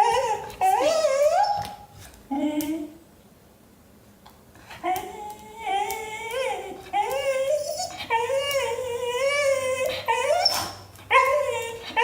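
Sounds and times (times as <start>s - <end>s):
dog whining high-pitched: 0.0s - 2.8s, 4.8s - 12.0s.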